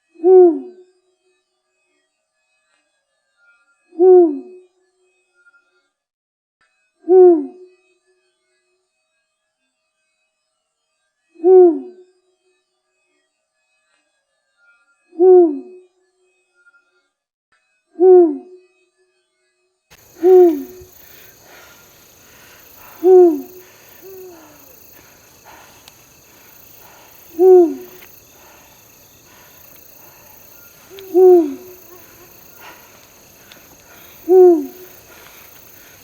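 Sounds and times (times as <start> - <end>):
owl hooting: 20.0 - 36.0.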